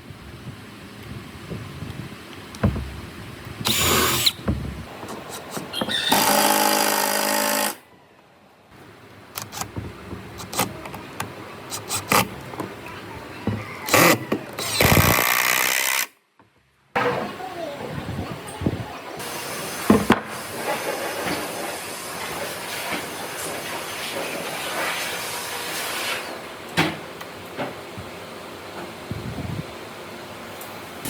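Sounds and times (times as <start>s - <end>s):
power tool running: 6.0s - 7.8s.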